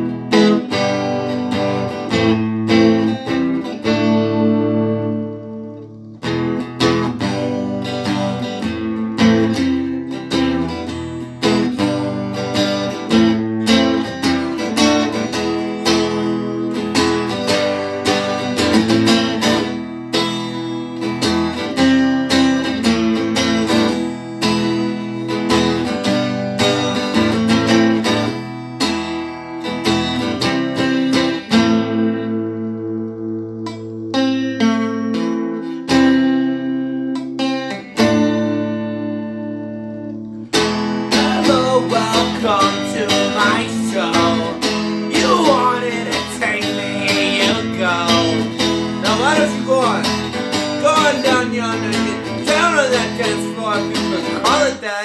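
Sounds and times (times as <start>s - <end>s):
electric guitar strumming: 0.0s - 55.0s
ringing low guitar notes: 30.2s - 55.0s.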